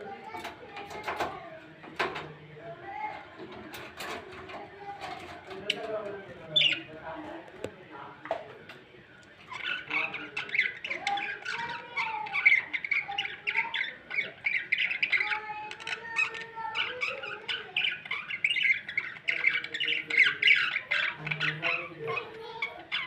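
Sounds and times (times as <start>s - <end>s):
parrot squawking: 6.5s - 6.9s, 9.5s - 23.0s.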